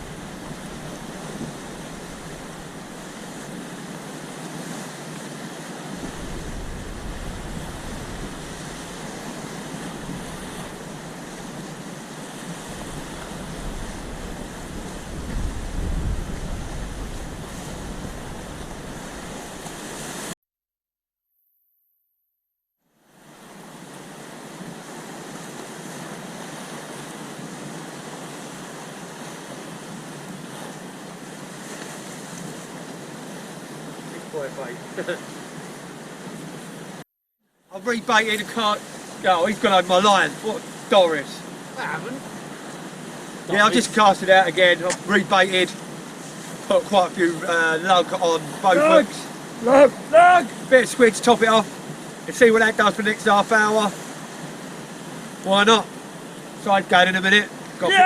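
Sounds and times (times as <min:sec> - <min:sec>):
wind buffeting microphone: 0:00.0 - 0:03.8, 0:05.8 - 0:20.2
sea surf washing: 0:00.0 - 0:20.4, 0:23.1 - 0:37.0, 0:37.7 - 0:58.0.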